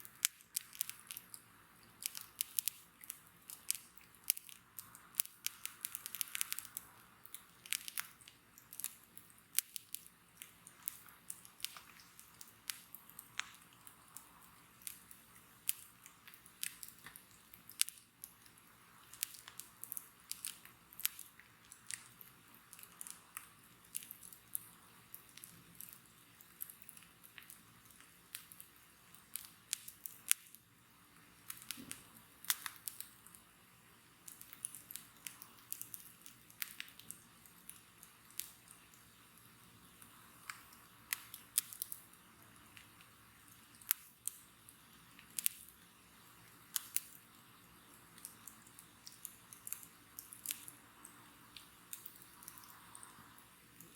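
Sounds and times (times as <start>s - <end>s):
bonfire crackling and popping: 0.0s - 53.9s
faint hiss of burning: 0.0s - 53.9s.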